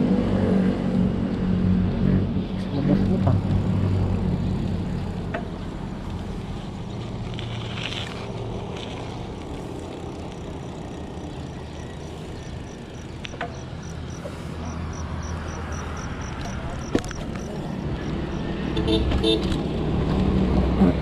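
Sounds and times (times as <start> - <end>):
motor vehicle rumble: 0.0 - 21.0
road and wind noise: 0.0 - 21.0
insect chirping: 10.0 - 18.6.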